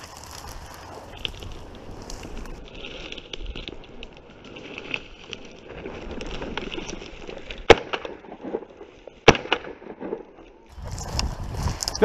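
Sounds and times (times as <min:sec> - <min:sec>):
footsteps crunching dry grass: 0:00.0 - 0:07.6, 0:10.6 - 0:12.0
shotgun shot: 0:09.3 - 0:10.2.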